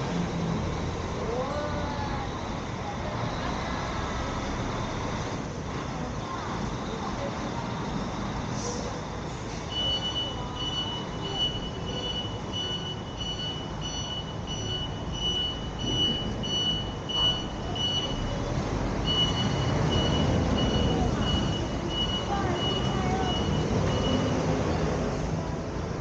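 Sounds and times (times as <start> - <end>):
vehicle rumble on the road: 0.0 - 26.0
high electronic beep: 9.7 - 18.4, 19.0 - 24.5.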